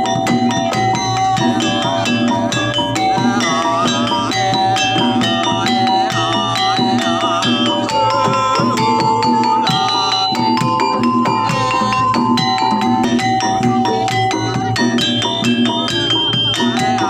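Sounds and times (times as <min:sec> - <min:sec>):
gamelan music: 0:00.0 - 0:17.0.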